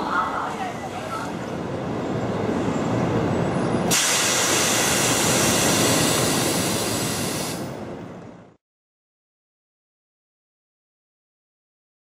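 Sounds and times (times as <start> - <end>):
train low rumble: 0.0 - 8.6
air release hiss: 3.9 - 7.7.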